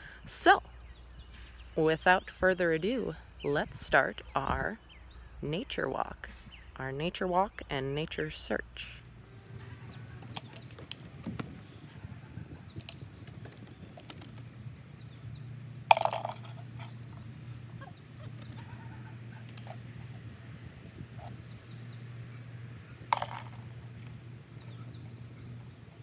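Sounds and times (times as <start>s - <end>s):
low hum: 0.0s - 26.0s
small birds chirping: 0.0s - 26.0s
loud bird calls: 9.0s - 26.0s.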